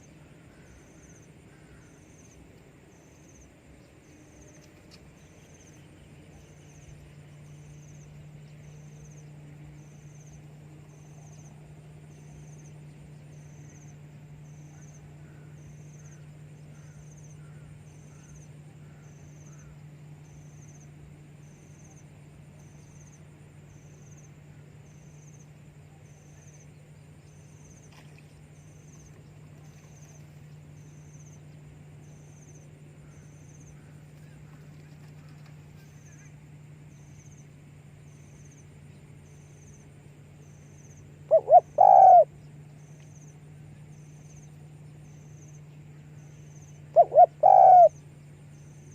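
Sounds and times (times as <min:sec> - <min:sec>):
faint insect chirps: 0:00.0 - 0:48.9
steady low hum: 0:00.0 - 0:48.9
dove cooing: 0:41.3 - 0:42.4, 0:46.9 - 0:48.0.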